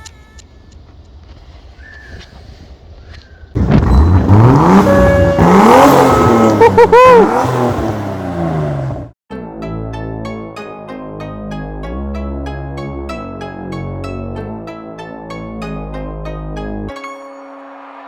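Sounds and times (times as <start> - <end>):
car engine revving: 3.6 - 9.2.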